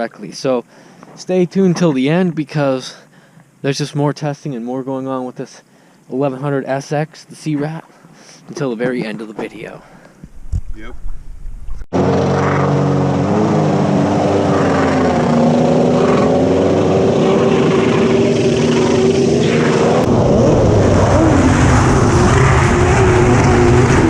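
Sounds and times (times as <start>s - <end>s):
jet ski engine running at high revs: 12.0s - 24.0s.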